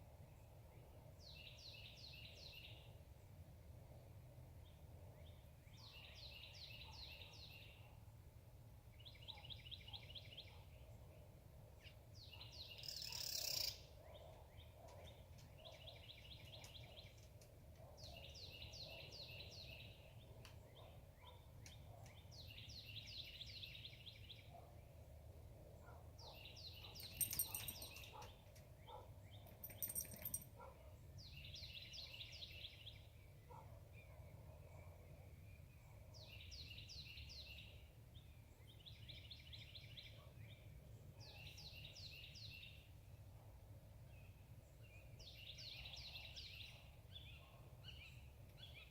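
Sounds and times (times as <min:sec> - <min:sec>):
songbird singing repeated notes: 0:11.8 - 0:25.0, 0:25.8 - 0:42.9.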